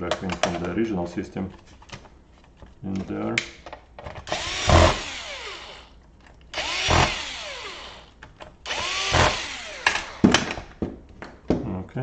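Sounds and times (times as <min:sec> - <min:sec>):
electric screwdriver running: 0:04.3 - 0:05.9, 0:06.6 - 0:10.3.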